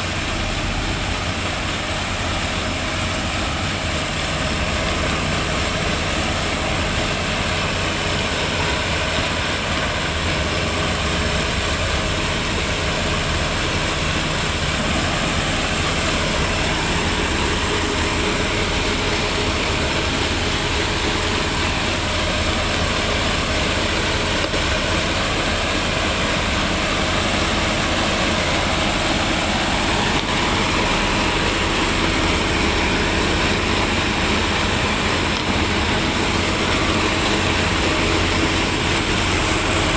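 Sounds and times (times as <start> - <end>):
tractor diesel engine droning: 0.0 - 39.9.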